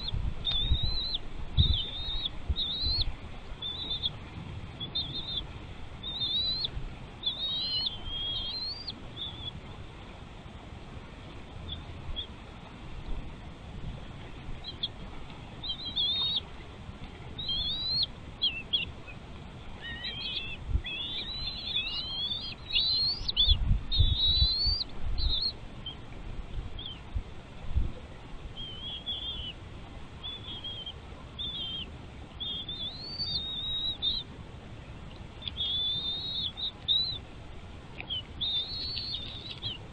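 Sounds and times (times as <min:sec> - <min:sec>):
birds chirping: 0:00.0 - 0:10.0, 0:11.2 - 0:12.4, 0:14.1 - 0:26.1, 0:26.7 - 0:27.1, 0:28.4 - 0:39.9.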